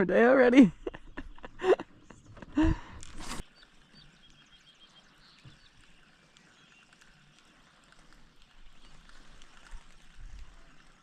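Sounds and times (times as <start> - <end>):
small birds chirping: 0.0 - 11.0
brief rustle: 2.9 - 3.6, 5.4 - 11.0.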